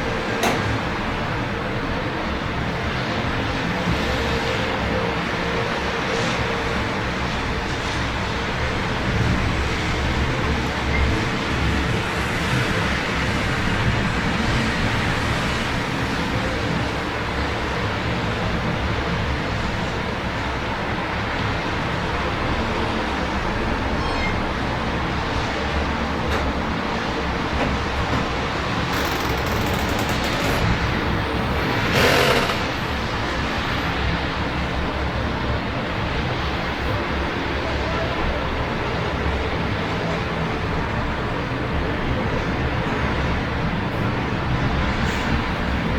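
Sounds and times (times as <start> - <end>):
road traffic hum: 26.0 - 36.6.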